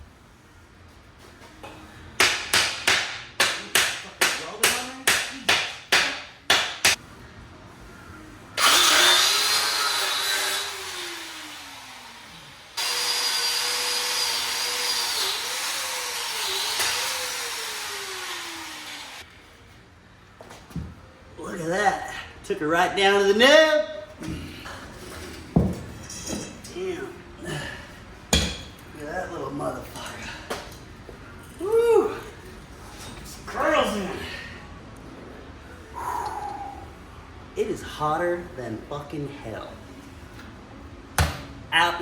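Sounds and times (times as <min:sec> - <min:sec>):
angle grinder cutting metal: 0:08.6 - 0:19.2.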